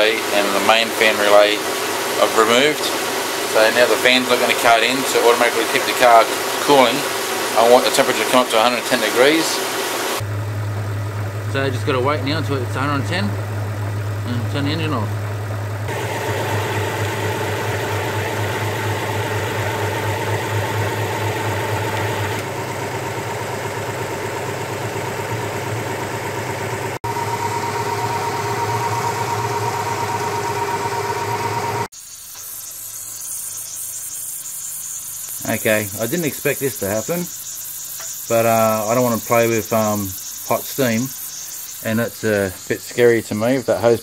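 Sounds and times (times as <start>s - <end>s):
steam hissing from hose: 0.0s - 10.2s, 31.9s - 44.0s
car engine idling: 0.0s - 31.9s.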